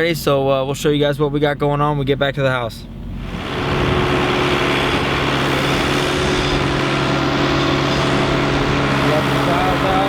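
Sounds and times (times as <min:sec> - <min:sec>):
road noise: 0:00.0 - 0:10.0
truck engine: 0:02.8 - 0:10.0.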